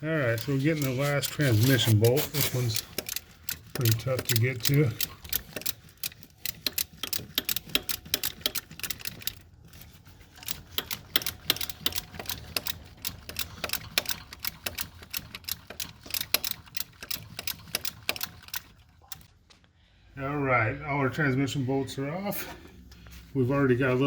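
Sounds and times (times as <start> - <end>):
ratchet wrench clicking: 0.3 - 9.4, 10.4 - 19.3.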